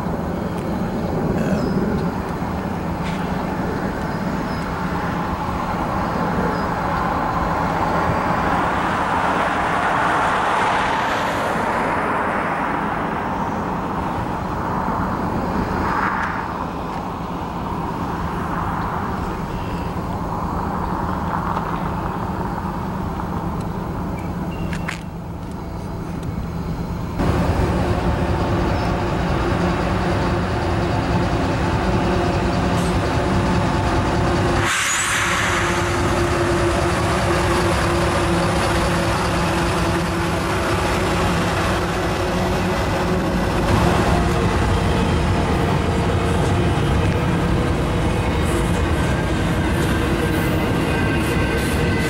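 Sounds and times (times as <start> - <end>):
diesel locomotive engine drone: 0.0 - 52.0
rumble of freight cars rolling: 0.0 - 52.0
hissing noise: 34.4 - 38.1.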